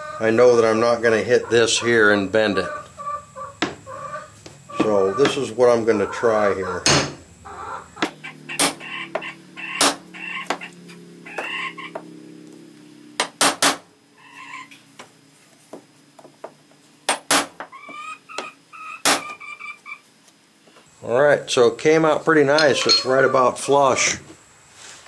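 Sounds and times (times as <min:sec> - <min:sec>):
metal-on-metal hammer knocks: 0:06.8 - 0:07.2, 0:22.5 - 0:23.1
low metallic ringing: 0:22.5 - 0:23.3.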